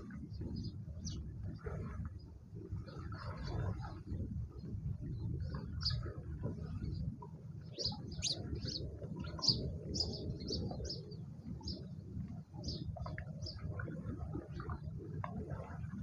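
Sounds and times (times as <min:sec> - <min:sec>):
small birds chirping: 0:05.6 - 0:06.0, 0:07.7 - 0:11.9, 0:12.6 - 0:13.7.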